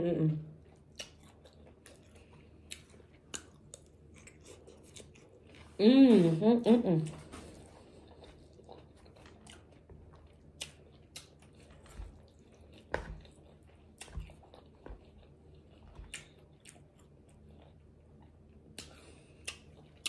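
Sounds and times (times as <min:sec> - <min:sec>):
faint chewing: 0:00.6 - 0:06.4, 0:07.0 - 0:20.0.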